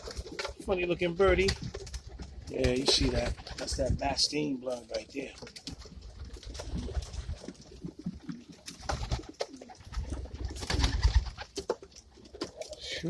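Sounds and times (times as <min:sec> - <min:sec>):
clicks and scuffs of birds moving: 0:00.0 - 0:13.0
pigeons cooing: 0:00.0 - 0:13.0.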